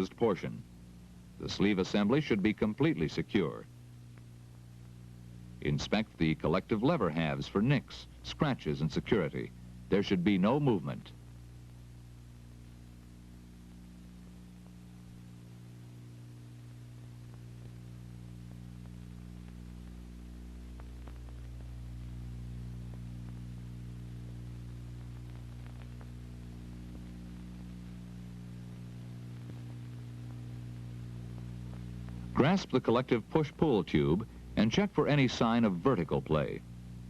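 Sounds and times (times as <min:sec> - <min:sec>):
faint hiss: 0:00.0 - 0:37.0
low electrical hum: 0:00.0 - 0:37.0
faint clicks: 0:24.2 - 0:28.0.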